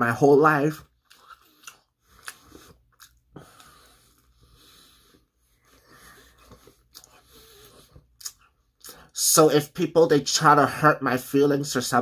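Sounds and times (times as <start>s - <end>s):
chewing crunchy crust: 0.7s - 9.1s
breathing through the nose: 2.0s - 8.1s.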